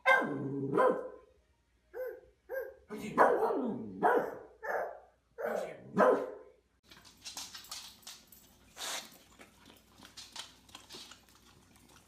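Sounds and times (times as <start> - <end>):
dog barking: 0.0 - 1.3, 2.0 - 6.5.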